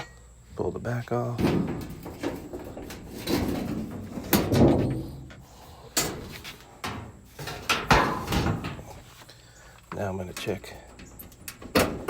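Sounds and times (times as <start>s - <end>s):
sheet metal scraping and clanking: 1.3s - 9.2s.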